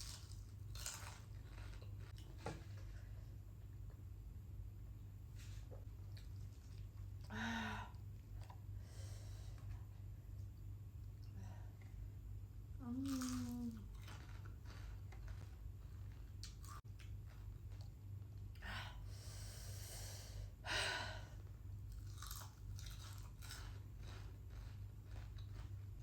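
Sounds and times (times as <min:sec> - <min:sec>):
chewing and crunching food: 0:00.0 - 0:03.2, 0:05.8 - 0:07.3, 0:12.8 - 0:18.6, 0:21.4 - 0:26.0
low electrical hum: 0:00.0 - 0:26.0
person humming: 0:12.8 - 0:13.9.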